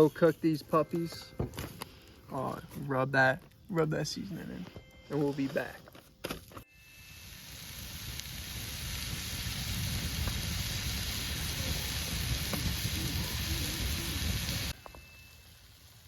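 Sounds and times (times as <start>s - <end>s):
burgers sizzling in a pan: 7.0s - 16.0s.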